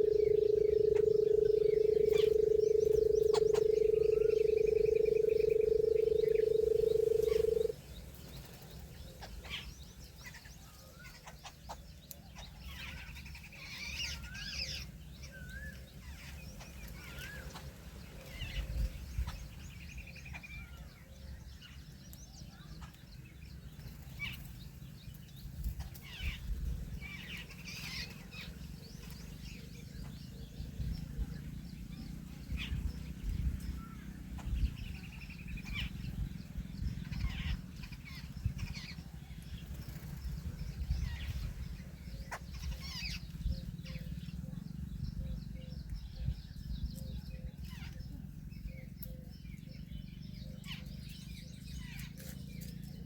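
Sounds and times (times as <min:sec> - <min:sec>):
steady low rumble: 0:00.0 - 0:07.8
birds chirping: 0:00.0 - 0:53.0.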